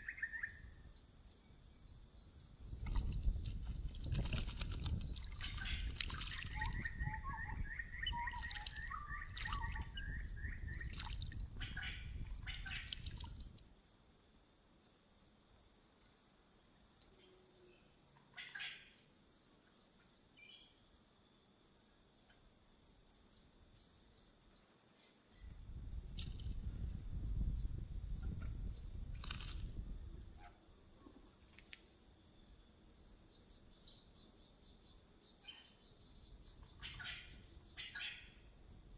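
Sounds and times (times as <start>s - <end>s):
rapid high bird chirp: 2.5s - 13.6s
other birds calling: 2.6s - 13.6s, 35.4s - 38.9s.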